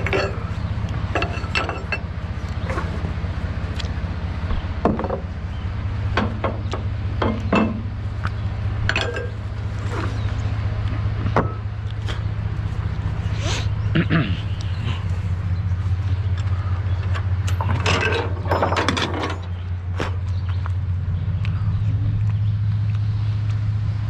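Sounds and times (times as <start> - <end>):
short knocks and metallic clinks: 0.0 - 0.5, 1.1 - 2.1, 17.0 - 19.6
vehicle engine running: 0.0 - 24.0.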